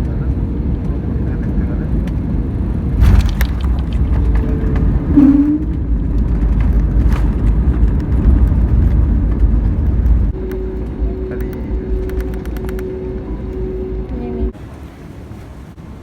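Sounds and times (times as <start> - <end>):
vehicle engine rumble: 2.8 - 14.8
brief tone: 10.3 - 14.6.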